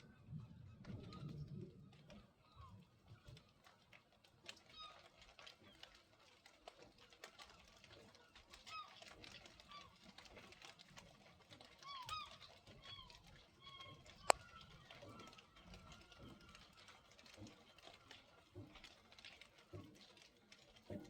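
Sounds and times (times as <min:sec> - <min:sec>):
light ticks: 0:14.1 - 0:14.5.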